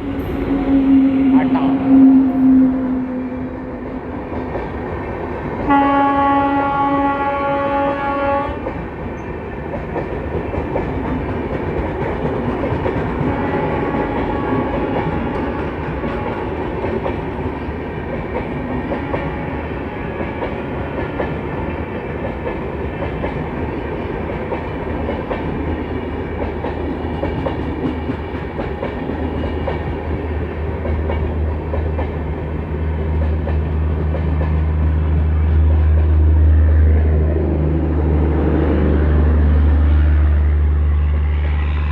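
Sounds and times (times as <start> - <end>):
train wheels clattering over rail joints: 8.7 - 19.4.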